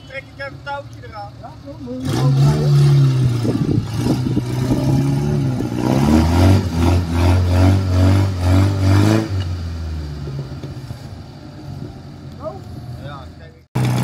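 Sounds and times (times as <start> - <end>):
engine revving hard: 2.0 - 9.5.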